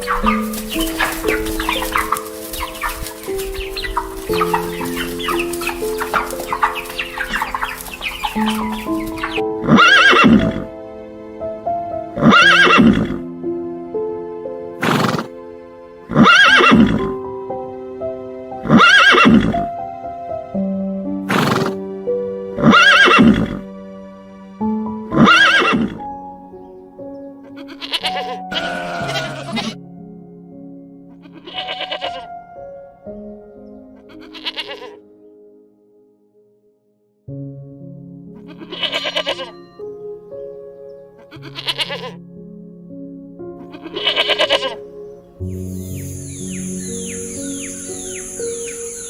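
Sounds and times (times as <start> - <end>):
animal calling loudly: 0.0 - 10.7, 12.2 - 13.2, 16.1 - 17.2, 18.6 - 19.7, 22.6 - 23.6, 25.2 - 26.0, 27.5 - 29.8, 31.2 - 32.3, 34.0 - 35.0, 38.4 - 39.6, 41.2 - 42.2, 43.7 - 44.8
chatter of animal calls: 0.0 - 10.7, 27.5 - 29.8, 43.7 - 44.8
background music: 0.0 - 49.0.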